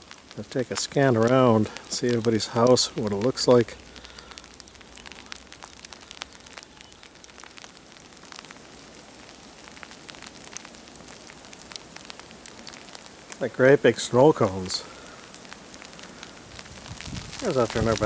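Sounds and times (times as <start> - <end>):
sleet falling through trees: 0.0 - 8.7.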